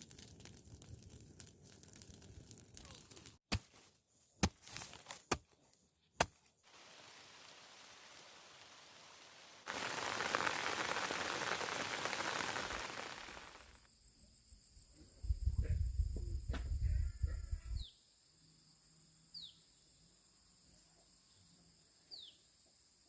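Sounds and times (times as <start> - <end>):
loud rushing hiss: 6.7 - 13.8
steady hiss: 6.7 - 13.8.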